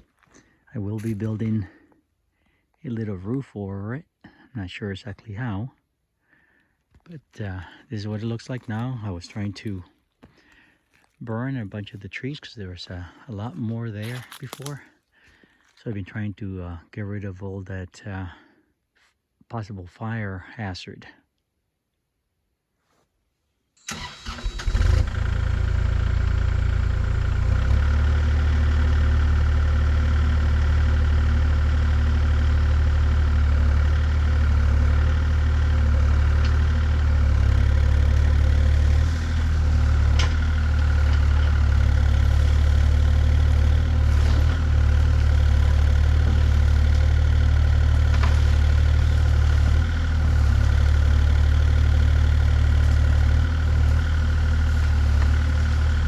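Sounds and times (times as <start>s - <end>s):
engine idling: 23.9s - 56.0s.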